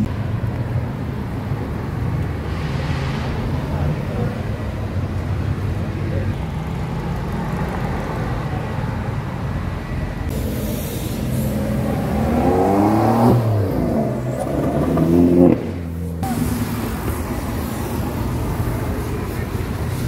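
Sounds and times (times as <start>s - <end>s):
traffic noise: 0.0s - 20.0s
sports car engine revving: 10.3s - 18.6s.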